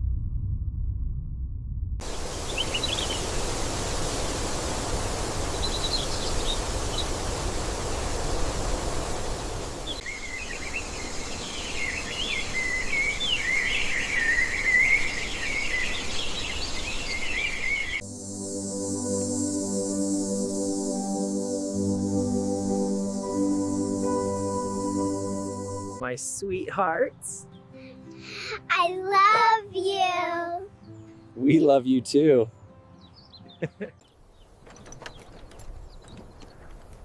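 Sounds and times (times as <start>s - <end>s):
outdoor background noise: 2.0s - 18.3s, 33.2s - 37.0s
birds chirping: 2.1s - 18.0s, 30.7s - 37.0s
soft ambient music: 18.0s - 34.0s.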